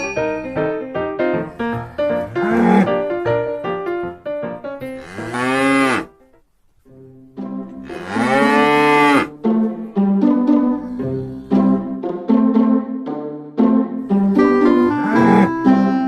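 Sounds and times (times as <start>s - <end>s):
piano notes: 0.0s - 16.0s
drawn-out animal calls: 1.4s - 3.2s, 4.9s - 6.2s, 7.8s - 9.4s, 14.2s - 16.0s.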